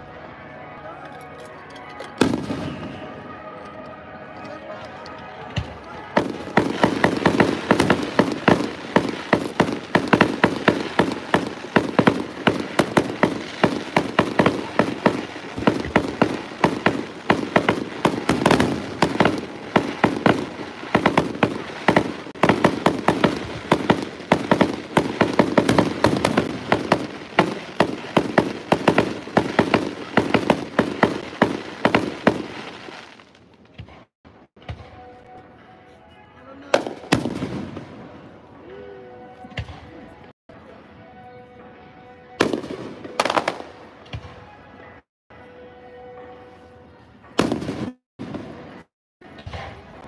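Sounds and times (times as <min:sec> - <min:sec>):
fireworks bursting and crackling: 0:02.2 - 0:03.2, 0:05.5 - 0:34.1, 0:36.8 - 0:38.2, 0:42.4 - 0:44.3, 0:47.4 - 0:50.0.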